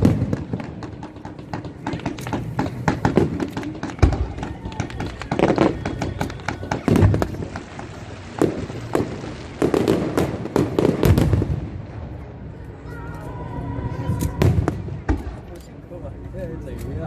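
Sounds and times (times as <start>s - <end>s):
fireworks bangs and crackling: 0.0s - 12.6s, 13.9s - 15.6s.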